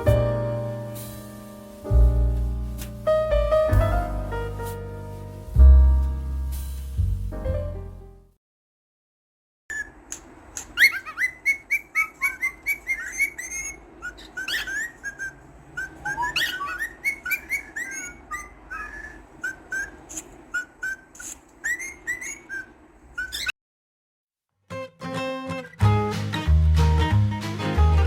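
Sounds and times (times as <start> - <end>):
cockatiel chirping and whistling: 9.7 - 23.5.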